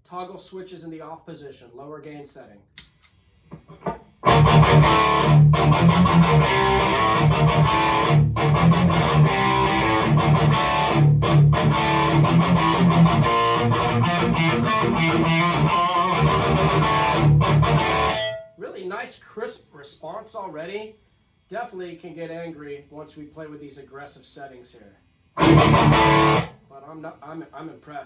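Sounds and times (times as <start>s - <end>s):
distorted electric guitar riffing: 3.7s - 18.6s, 25.4s - 26.5s.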